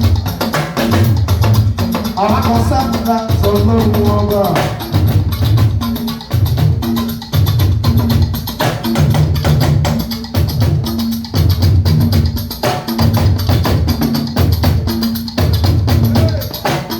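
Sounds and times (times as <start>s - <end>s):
wood-block-like percussion: 0.0s - 16.9s
repeating bass line: 1.0s - 8.4s.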